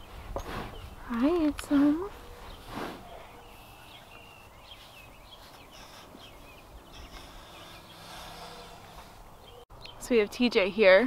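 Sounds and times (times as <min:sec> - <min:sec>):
faint bird chirps: 0:02.2 - 0:10.1.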